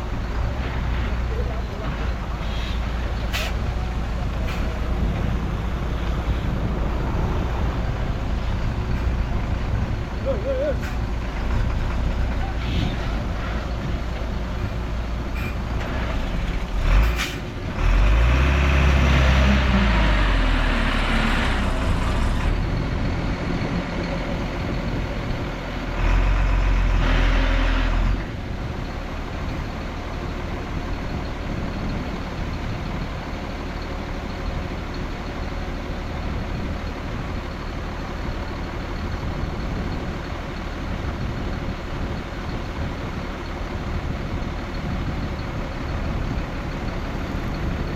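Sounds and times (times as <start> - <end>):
diesel engine revving: 0.0 - 47.9.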